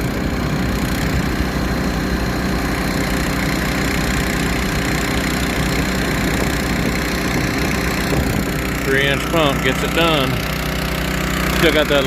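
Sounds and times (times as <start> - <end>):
pump engine running: 0.0 - 12.0.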